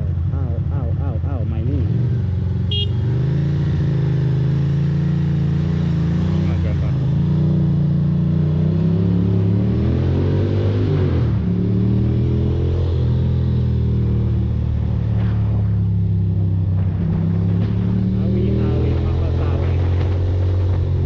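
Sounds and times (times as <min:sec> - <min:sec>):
motorcycle engine running: 0:02.1 - 0:08.3.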